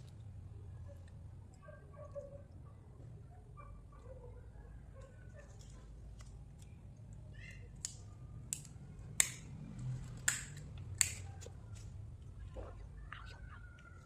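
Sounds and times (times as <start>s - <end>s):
crisp dessert snapping: 6.1s - 9.5s, 10.2s - 11.9s.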